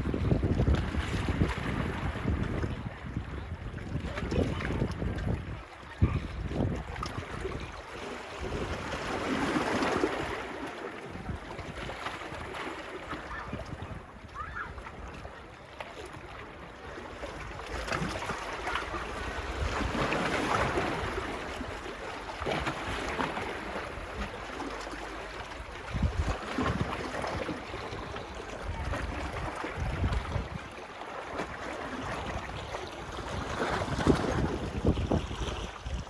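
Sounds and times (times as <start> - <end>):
wind buffeting microphone: 0.0 - 7.8, 13.2 - 15.3, 25.5 - 30.8, 31.4 - 36.0
small waves washing onto beach: 0.0 - 36.0.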